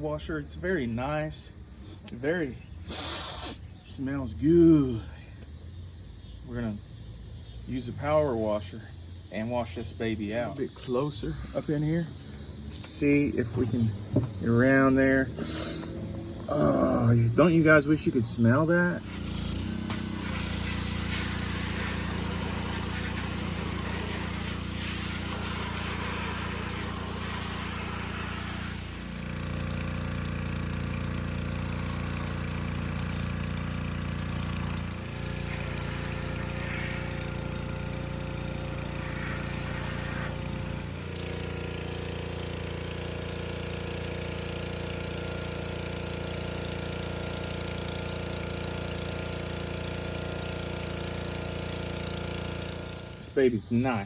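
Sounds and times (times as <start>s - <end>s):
water spray hissing: 2.8s - 3.8s, 14.4s - 43.3s
pressure washer drone: 9.4s - 54.0s.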